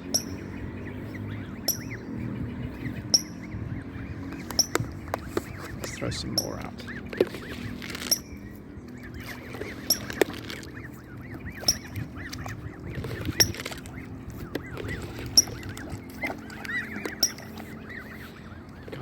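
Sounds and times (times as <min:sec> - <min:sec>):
goslings peeping: 0:00.0 - 0:19.0.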